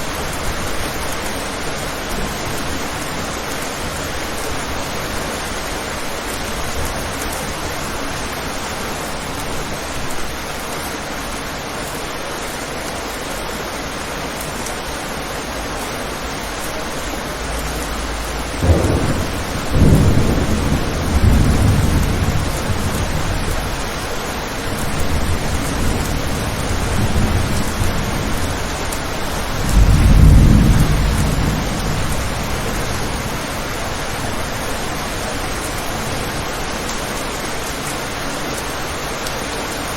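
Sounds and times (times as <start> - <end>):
rain on a window: 0.0 - 39.9
thunder crack and rumbles: 16.7 - 36.6.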